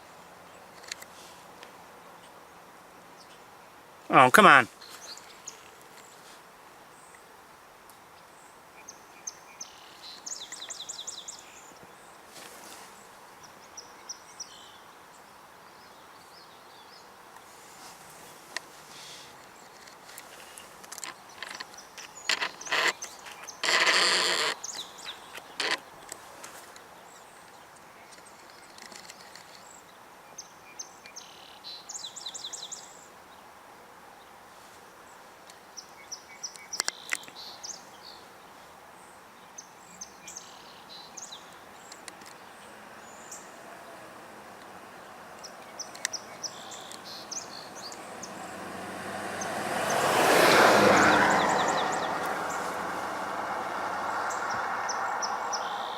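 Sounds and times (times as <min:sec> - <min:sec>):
outdoor background noise: 0:00.0 - 0:55.9
small birds chirping: 0:04.2 - 0:07.3, 0:08.0 - 0:33.5, 0:34.2 - 0:55.9
vehicle approaching: 0:42.6 - 0:55.9.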